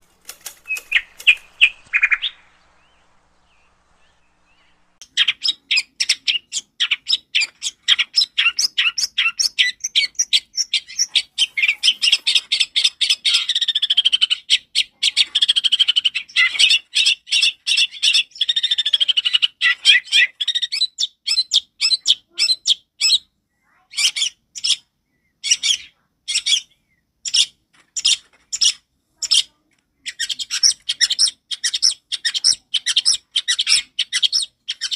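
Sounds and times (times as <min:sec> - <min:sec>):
bird singing sharp chattering notes: 0:00.6 - 0:13.8.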